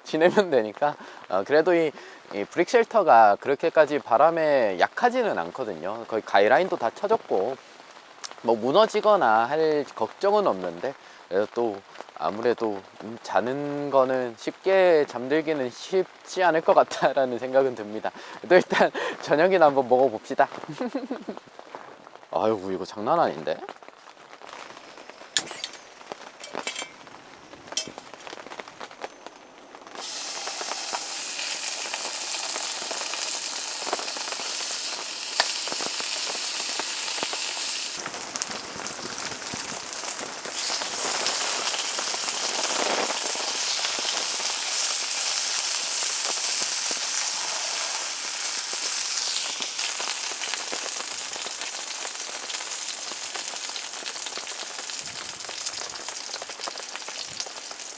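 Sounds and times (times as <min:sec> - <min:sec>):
meat sizzling in a hot pan: 0:24.5 - 0:57.9.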